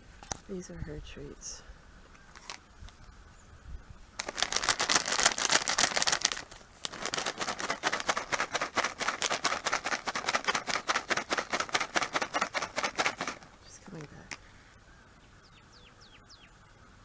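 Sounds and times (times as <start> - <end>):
treat package rattling: 2.3 - 2.6, 4.2 - 14.5.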